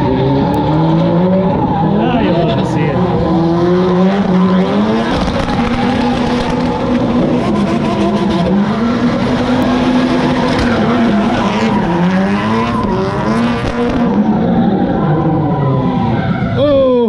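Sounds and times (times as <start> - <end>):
car engines revving high: 0.0 - 17.0.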